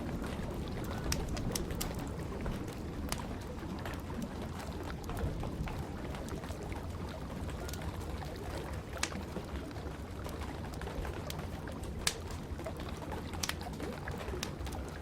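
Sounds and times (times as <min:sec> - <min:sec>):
rain rushing: 0:00.0 - 0:09.8
fire popping: 0:00.0 - 0:15.0
wood fire crackling: 0:00.0 - 0:15.0.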